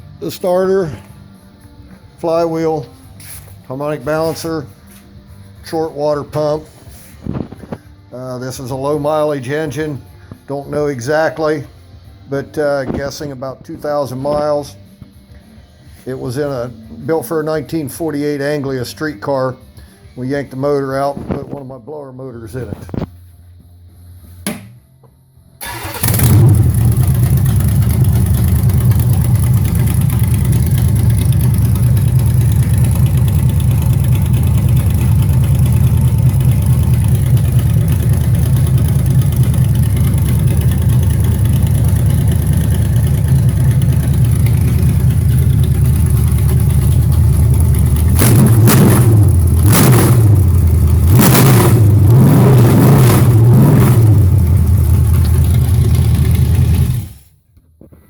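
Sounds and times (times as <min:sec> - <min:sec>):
engine revving: 0:25.6 - 0:57.2
car engine starting and idling: 0:25.6 - 0:57.4.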